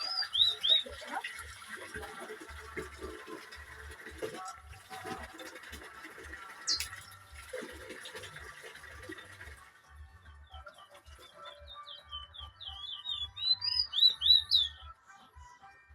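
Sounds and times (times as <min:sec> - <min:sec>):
songbird singing: 0:00.0 - 0:01.2, 0:06.6 - 0:07.3, 0:10.4 - 0:15.0.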